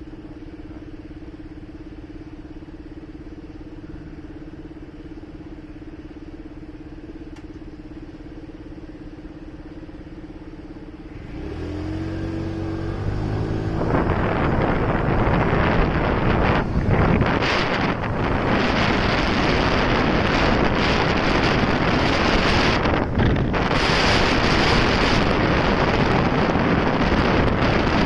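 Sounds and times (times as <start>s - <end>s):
motorcycle engine: 0.0s - 28.0s
wind noise on microphone: 11.1s - 28.0s.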